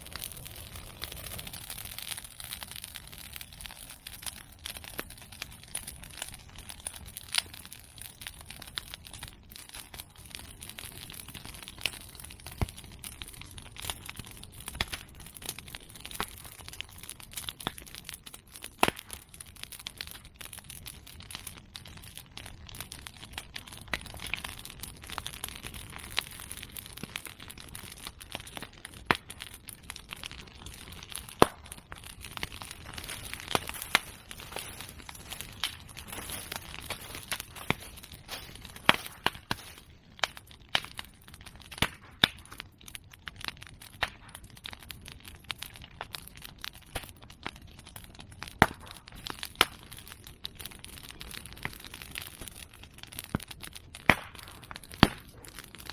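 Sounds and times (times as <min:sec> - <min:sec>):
bonfire crackling: 0:00.0 - 0:55.9
bamboo stems popping: 0:30.6 - 0:40.9.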